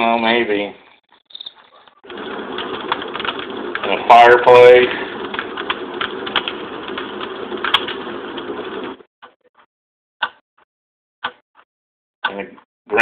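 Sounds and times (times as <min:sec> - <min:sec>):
fireplace hiss with crackling pops: 0:02.1 - 0:09.0.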